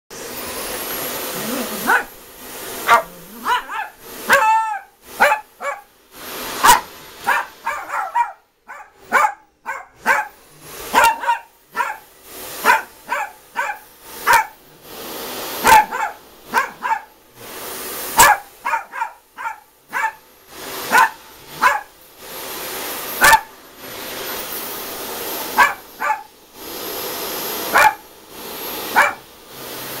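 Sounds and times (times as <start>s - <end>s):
vacuum cleaner motor: 0.1s - 30.0s
dog barking: 1.4s - 2.2s, 2.8s - 5.9s, 6.6s - 14.6s, 15.6s - 17.2s, 18.2s - 20.2s, 20.9s - 22.0s, 23.2s - 23.5s, 25.5s - 26.3s, 27.7s - 28.0s, 28.9s - 29.3s.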